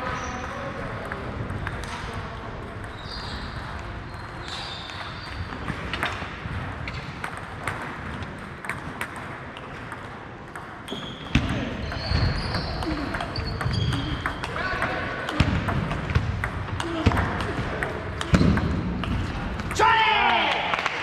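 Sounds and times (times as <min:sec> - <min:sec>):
murmur of large hall: 0:00.0 - 0:21.0
high squeaks: 0:10.9 - 0:14.5.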